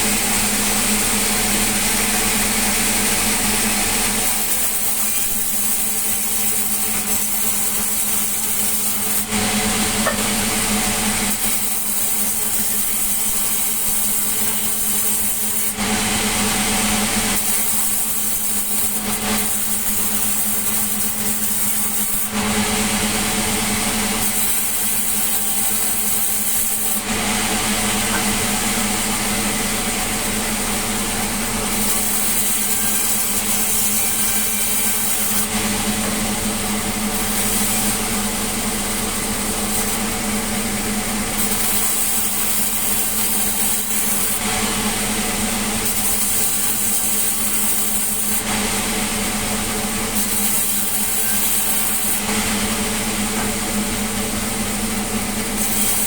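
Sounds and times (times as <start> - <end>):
sawmill machinery humming: 0.0 - 56.0.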